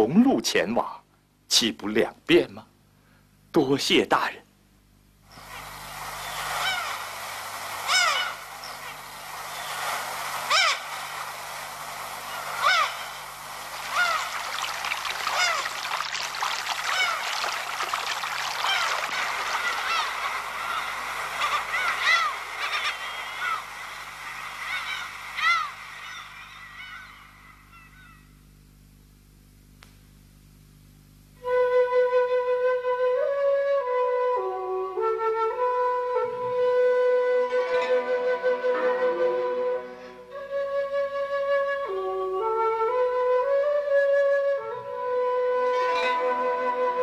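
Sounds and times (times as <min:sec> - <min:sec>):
steady background hiss: 0:00.0 - 0:47.0
bird calling: 0:05.3 - 0:07.1, 0:07.8 - 0:11.2, 0:12.2 - 0:28.4
flute note: 0:31.4 - 0:47.0.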